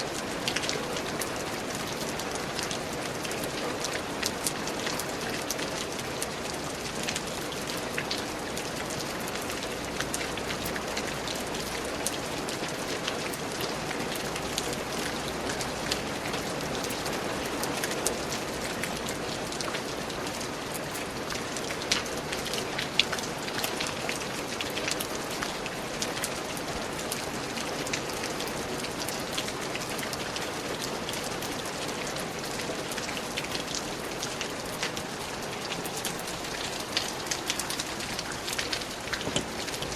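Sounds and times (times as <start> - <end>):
raindrops pattering: 0.0 - 39.9
steady rainfall: 0.0 - 39.9.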